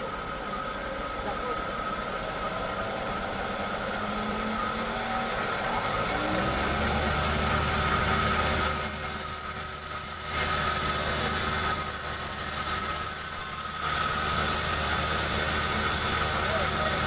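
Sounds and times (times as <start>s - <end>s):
chainsaw cutting log: 5.8s - 17.0s.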